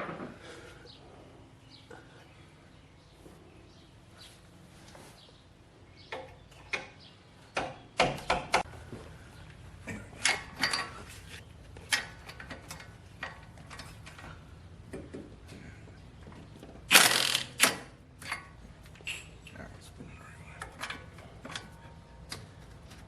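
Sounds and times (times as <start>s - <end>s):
hand ratchet clicking: 16.9s - 18.4s.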